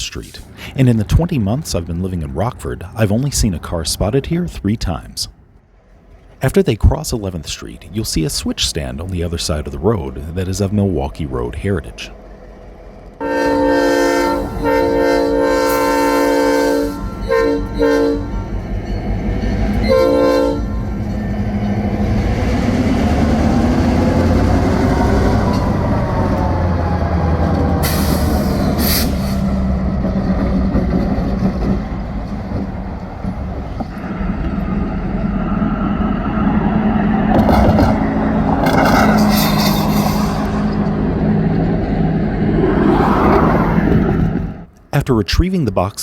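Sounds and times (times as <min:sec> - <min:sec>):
locomotive horn blasts: 0:13.2 - 0:18.6, 0:19.7 - 0:21.2.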